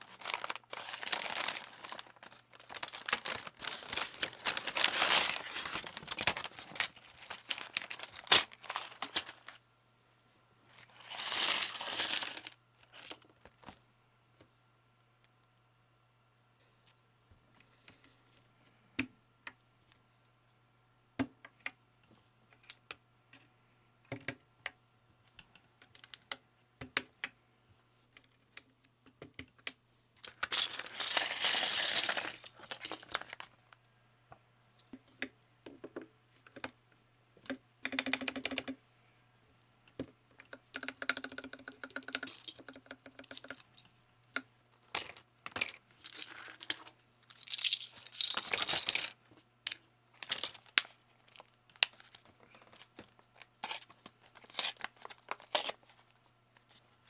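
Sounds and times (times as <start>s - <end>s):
typing on mechanical keyboard: 37.8s - 38.8s.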